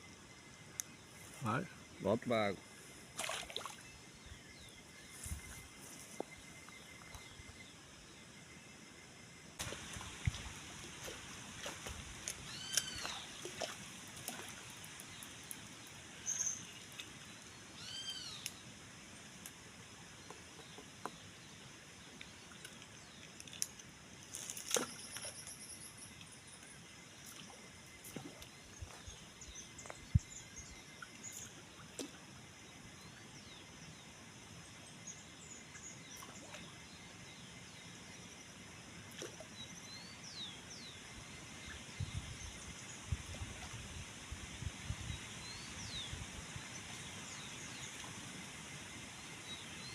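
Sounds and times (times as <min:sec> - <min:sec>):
outdoor hiss: 0:09.6 - 0:22.1
birds chirping: 0:12.4 - 0:13.7.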